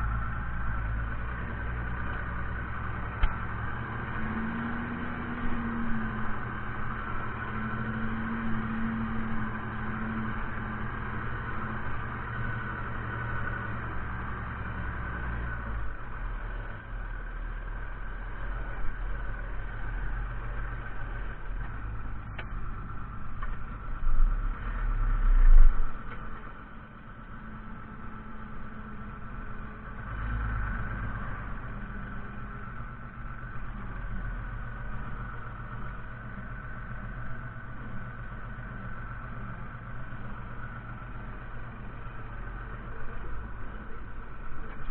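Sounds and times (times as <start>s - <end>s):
tractor diesel engine running: 0.0s - 44.9s
loud low rumble: 18.8s - 26.4s.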